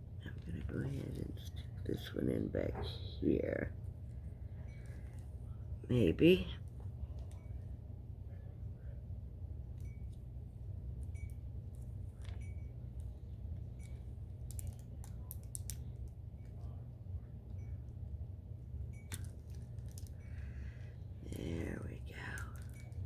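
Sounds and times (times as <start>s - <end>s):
low hum: 0.0s - 23.0s
small clicks and taps: 13.8s - 16.2s.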